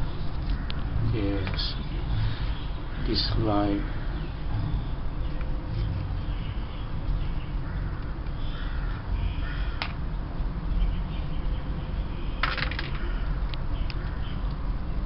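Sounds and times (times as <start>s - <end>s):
bird calling: 1.5s - 9.9s.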